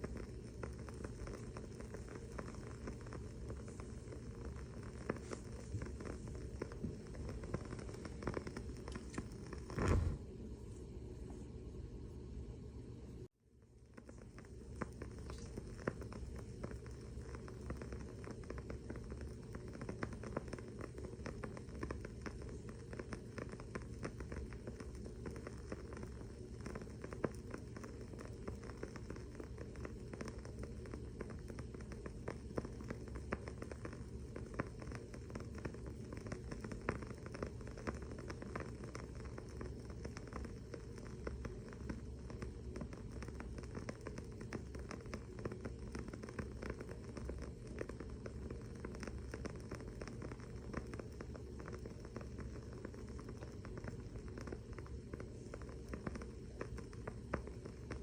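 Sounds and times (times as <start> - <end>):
candle wick crackling: 0.0 - 11.6, 13.6 - 58.0
faint low hum: 0.0 - 58.0.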